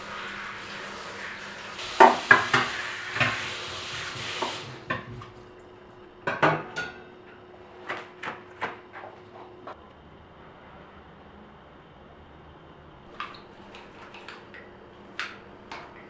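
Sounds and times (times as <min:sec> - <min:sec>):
steady hiss: 0:00.0 - 0:04.9.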